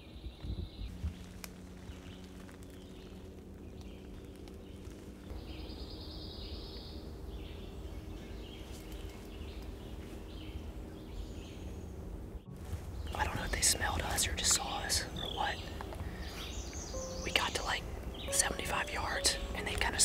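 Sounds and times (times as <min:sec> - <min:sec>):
low steady rumble: 0:00.0 - 0:20.0
woodland birds chirping: 0:00.0 - 0:20.0
bird trill: 0:14.6 - 0:20.0.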